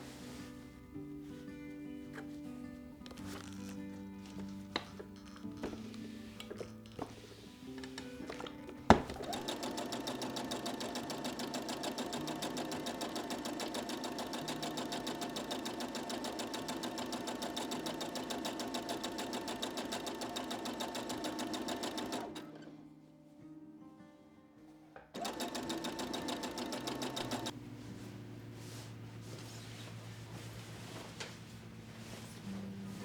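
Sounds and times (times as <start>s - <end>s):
sewing machine stitching: 7.8s - 22.7s, 25.2s - 27.6s.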